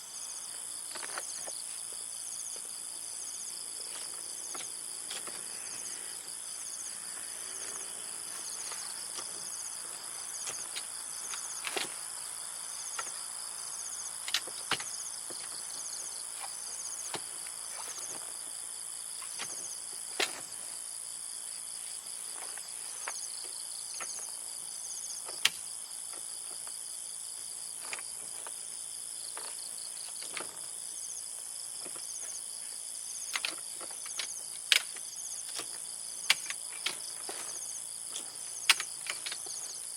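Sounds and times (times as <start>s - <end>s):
insects trilling: 0.0s - 39.9s
sharp clicks and knocks: 8.4s - 12.0s, 14.2s - 15.7s, 33.3s - 39.8s.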